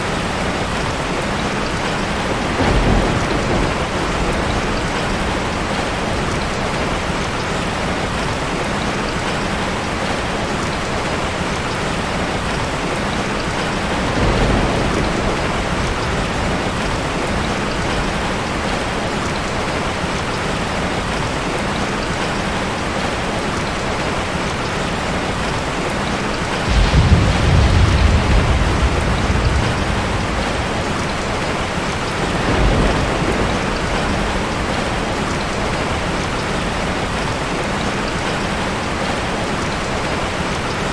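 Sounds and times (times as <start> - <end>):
ocean waves breaking: 26.6 - 37.2
deep rumbling wave surges: 26.7 - 33.5.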